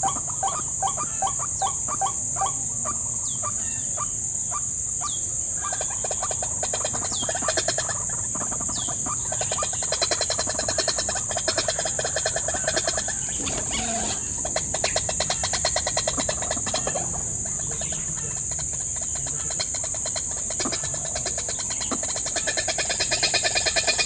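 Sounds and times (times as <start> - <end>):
high-pitched insect drone: 0.0 - 24.0
pulsed animal calls: 6.9 - 24.0.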